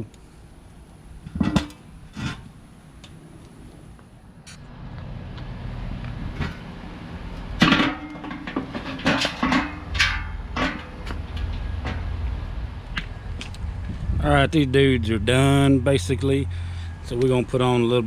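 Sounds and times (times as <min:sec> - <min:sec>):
metal cooker parts clanking: 0:07.6 - 0:12.1
low rumble: 0:09.9 - 0:18.0.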